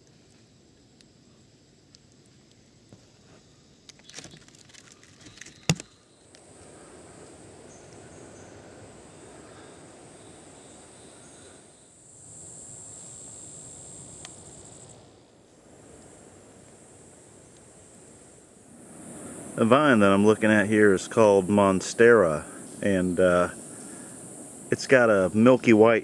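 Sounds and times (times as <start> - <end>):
insects buzzing high-pitched: 0.0 - 26.0
crackling and rustling: 1.8 - 8.0.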